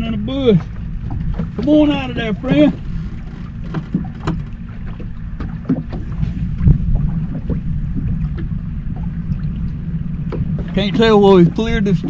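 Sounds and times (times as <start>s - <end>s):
wind buffeting microphone: 0.0s - 12.0s
light knocks and ticks: 0.6s - 6.3s.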